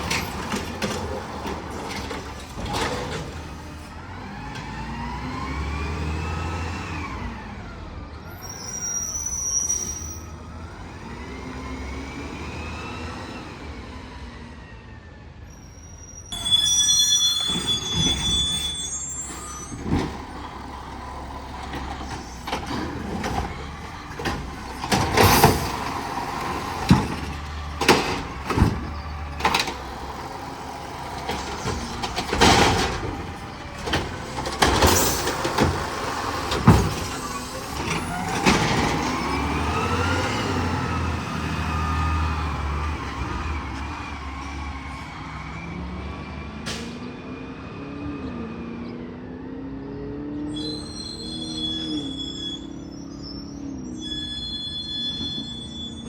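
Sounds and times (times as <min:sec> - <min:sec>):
garbage truck metallic clanks: 0:00.0 - 0:03.9, 0:16.4 - 0:43.8.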